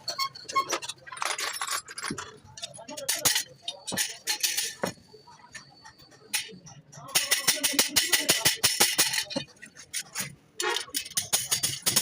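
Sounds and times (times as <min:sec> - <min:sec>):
metallic taps and clinks: 0:00.2 - 0:12.0.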